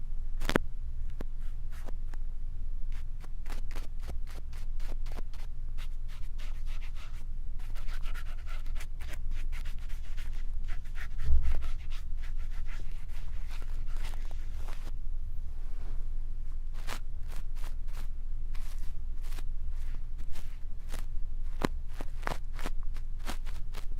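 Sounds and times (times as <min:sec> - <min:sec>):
brush bristles scratching microphone: 0:02.9 - 0:14.9, 0:16.7 - 0:23.9
steady low rumble: 0:11.1 - 0:12.3, 0:12.9 - 0:23.9.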